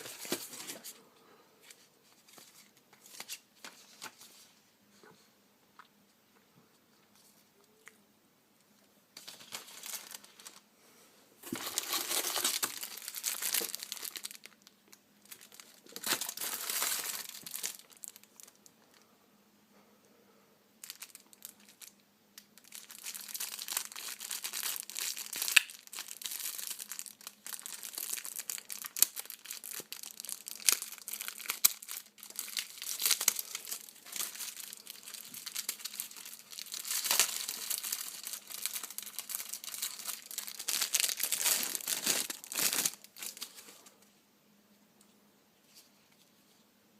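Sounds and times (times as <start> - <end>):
packaging crinkling: 9.2 - 10.6, 11.4 - 18.6, 20.8 - 22.0, 22.6 - 43.7.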